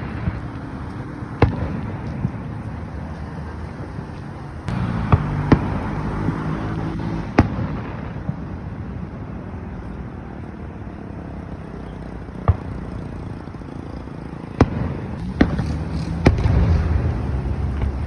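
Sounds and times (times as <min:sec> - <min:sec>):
fireworks exploding: 0:00.0 - 0:09.2, 0:14.2 - 0:18.0.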